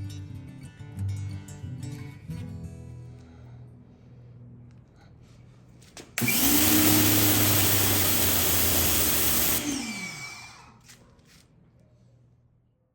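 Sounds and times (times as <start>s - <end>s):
pressure washer spray hissing: 6.2s - 9.8s
pressure washer motor humming: 6.2s - 10.6s.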